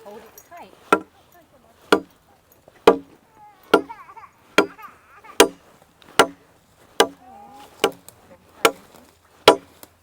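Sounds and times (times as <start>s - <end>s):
machete chopping wood: 1.9s - 2.1s, 2.8s - 4.0s, 4.6s - 4.8s, 5.4s - 7.2s, 7.8s - 9.8s.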